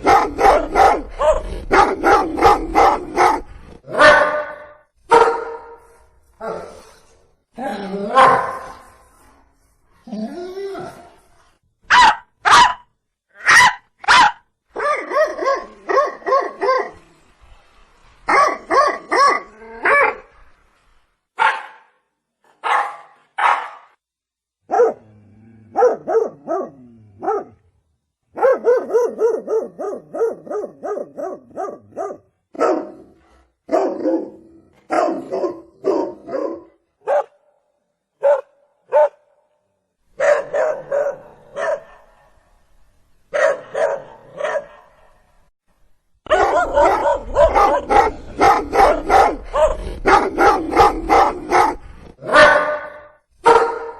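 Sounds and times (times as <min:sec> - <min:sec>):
dog barking: 0:00.0 - 0:05.9, 0:08.1 - 0:08.8, 0:11.9 - 0:17.0, 0:18.3 - 0:20.2, 0:21.4 - 0:22.0, 0:22.6 - 0:24.0, 0:24.7 - 0:25.1, 0:25.7 - 0:27.6, 0:28.3 - 0:37.5, 0:38.2 - 0:39.4, 0:40.2 - 0:42.4, 0:43.3 - 0:45.2, 0:46.3 - 0:53.9.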